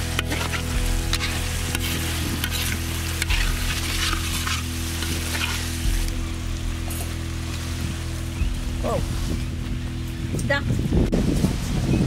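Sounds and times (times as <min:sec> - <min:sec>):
metal spoon stirring and scraping: 0:00.0 - 0:06.1
curry sizzling in iron pan: 0:00.0 - 0:09.3.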